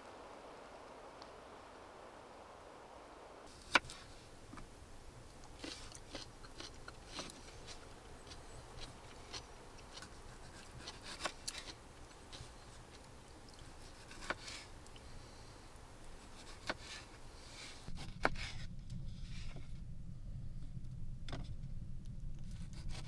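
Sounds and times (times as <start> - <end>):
faint low background noise: 0.0 - 23.0
steady low rumble: 18.7 - 22.7.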